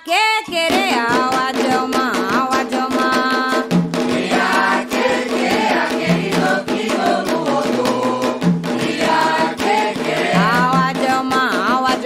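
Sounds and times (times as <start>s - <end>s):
hand-drum beats: 0.1s - 12.0s
singers chanting: 4.1s - 11.2s.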